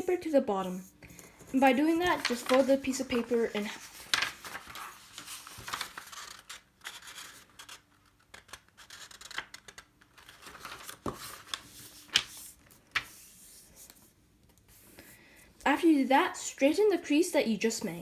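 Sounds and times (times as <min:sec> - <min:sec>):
paper rustling and folding: 0:00.0 - 0:14.1
paper crinkles: 0:00.6 - 0:13.2.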